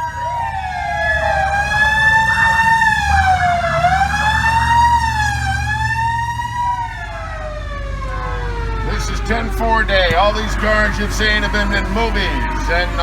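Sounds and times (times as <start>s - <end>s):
low rumble of vehicle engines: 0.0s - 13.0s
siren wailing: 0.0s - 13.0s.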